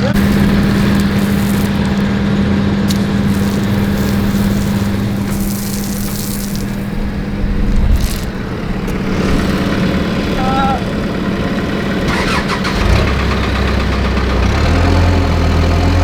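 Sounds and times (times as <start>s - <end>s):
hiss of spraying water: 0.0s - 12.8s
heavy equipment engine running: 0.0s - 16.0s.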